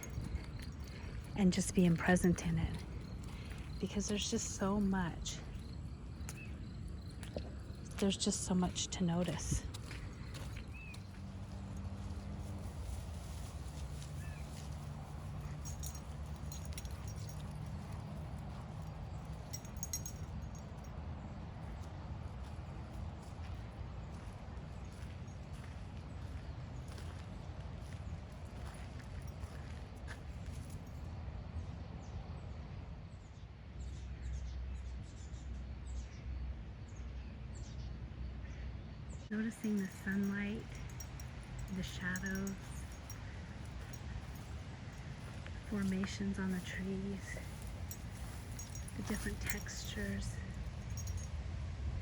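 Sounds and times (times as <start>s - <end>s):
footsteps on woodland path: 0.0s - 18.8s, 22.3s - 30.8s, 39.6s - 51.2s
small birds chirping: 0.0s - 20.6s, 39.2s - 51.3s
light metallic jingling: 0.0s - 23.6s, 39.4s - 51.5s
steady low rumble: 39.3s - 52.0s.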